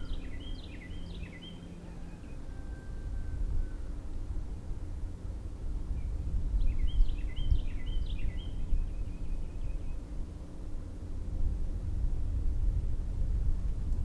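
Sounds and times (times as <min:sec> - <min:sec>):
songbird singing: 0:00.0 - 0:01.7.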